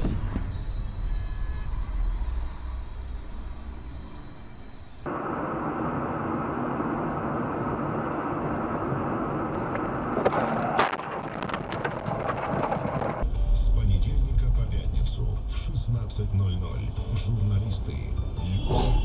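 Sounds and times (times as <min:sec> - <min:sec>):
road and engine noise: 0:00.0 - 0:19.0
vehicle collision cracks and knocks: 0:10.1 - 0:13.2.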